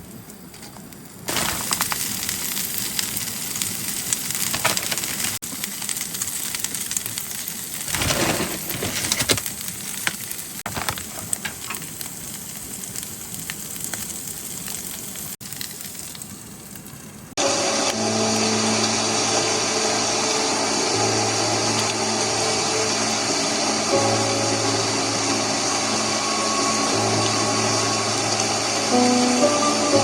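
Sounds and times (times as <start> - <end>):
food sizzling in a pan: 0.0 - 30.0
motor hum: 17.4 - 30.0.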